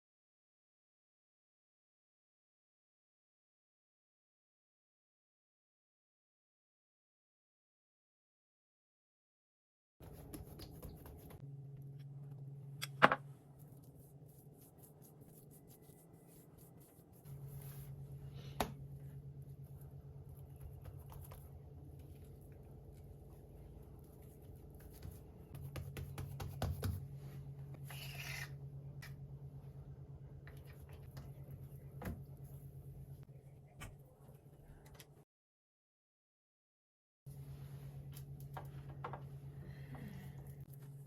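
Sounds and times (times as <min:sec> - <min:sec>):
low steady hum: 0:10.0 - 0:35.2, 0:37.3 - 0:41.0.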